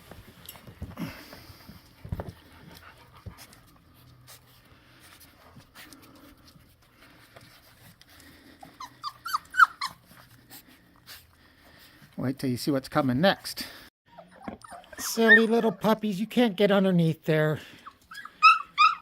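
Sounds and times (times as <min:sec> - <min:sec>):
puppies whimpering and yelping: 0:07.5 - 0:11.4, 0:14.1 - 0:16.0, 0:17.7 - 0:19.0.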